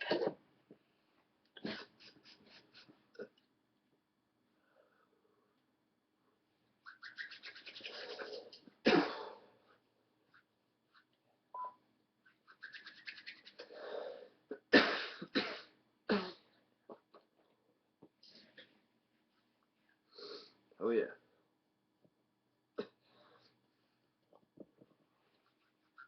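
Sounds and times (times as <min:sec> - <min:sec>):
person coughing: 0:00.0 - 0:00.4, 0:08.9 - 0:09.4.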